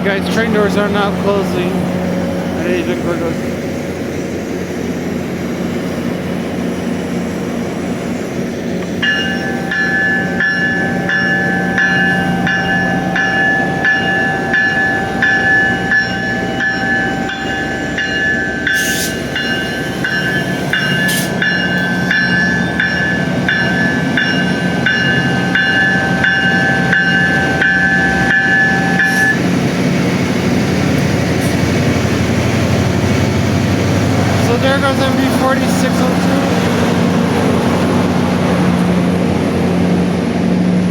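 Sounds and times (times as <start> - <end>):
diesel train engine droning: 0.0 - 40.9
warning bell ringing: 9.0 - 29.6.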